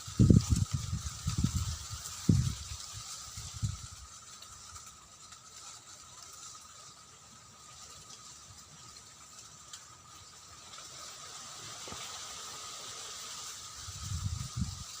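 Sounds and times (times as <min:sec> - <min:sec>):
wind rushing hiss: 0:00.0 - 0:05.6, 0:06.3 - 0:15.0
faint ticks: 0:07.6 - 0:12.3.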